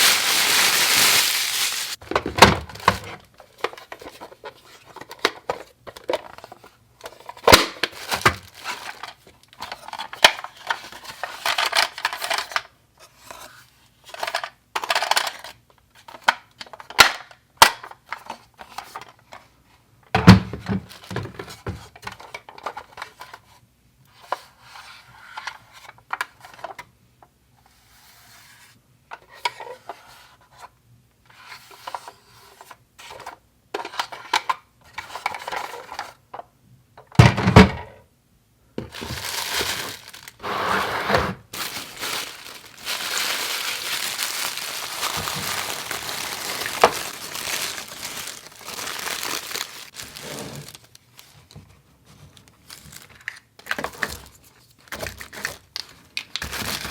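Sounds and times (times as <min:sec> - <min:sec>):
rustling packaging: 0:00.0 - 0:12.6, 0:38.8 - 0:56.9.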